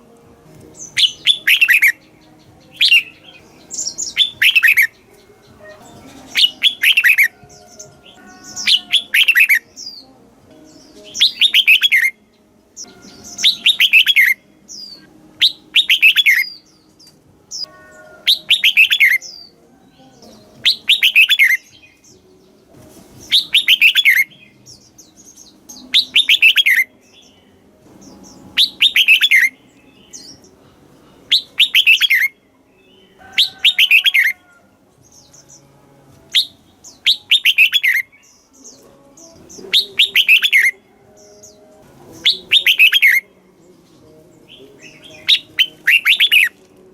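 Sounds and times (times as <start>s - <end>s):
bulbul singing: 0.0s - 46.9s.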